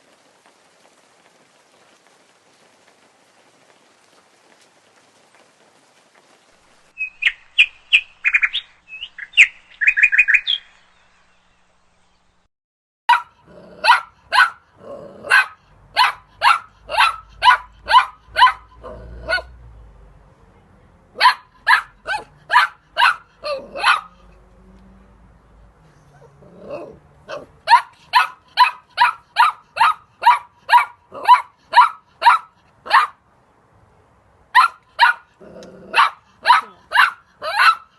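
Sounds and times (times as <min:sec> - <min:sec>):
short high chirping calls: 0:07.0 - 0:11.2
animal barking: 0:13.1 - 0:19.6, 0:21.2 - 0:24.5, 0:26.1 - 0:33.2, 0:34.6 - 0:37.9.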